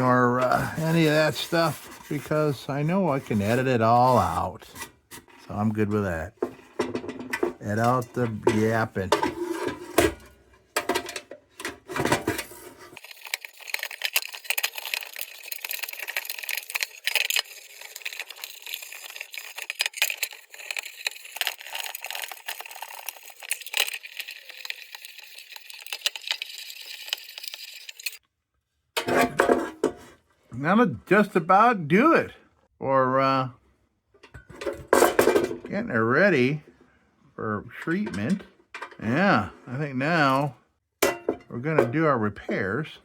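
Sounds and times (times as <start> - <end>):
steel wool scrubbing tin: 0.0 - 28.2.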